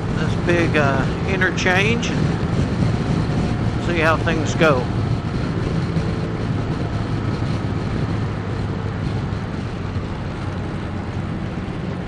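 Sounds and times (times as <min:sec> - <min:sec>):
motorcycle engine running steadily: 0:00.0 - 0:12.0
wind noise on microphone: 0:00.0 - 0:12.0.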